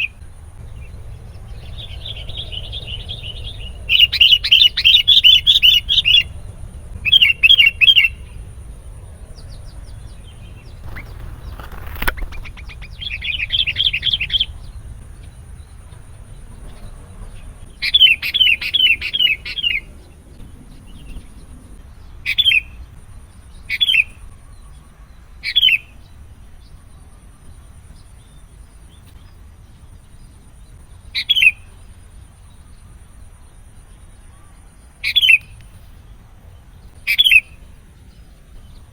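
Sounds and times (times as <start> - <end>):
bulbul chattering calls: 0.0 - 6.4, 9.3 - 15.6, 35.0 - 35.9, 37.0 - 38.2.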